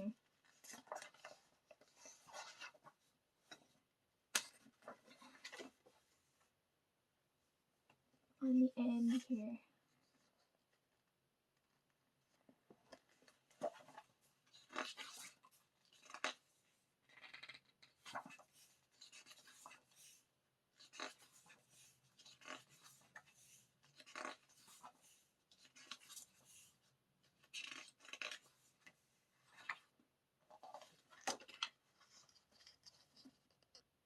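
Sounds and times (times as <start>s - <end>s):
paper pages rustling: 0.3s - 3.6s, 12.9s - 16.4s, 17.1s - 29.9s, 30.5s - 33.8s.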